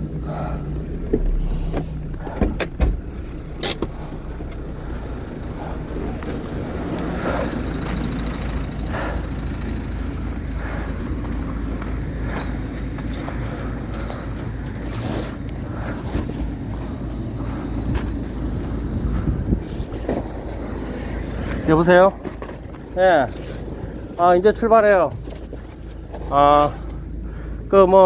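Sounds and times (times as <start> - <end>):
vehicle engine low rumble: 0.0 - 28.0
sharp knocks and clunks: 1.0 - 5.4.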